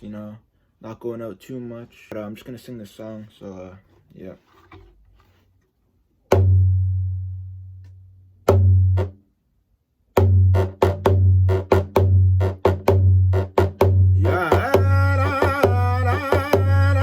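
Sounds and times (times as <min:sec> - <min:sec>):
deep drum beat: 0:06.3 - 0:07.2, 0:08.5 - 0:09.2, 0:10.2 - 0:17.0.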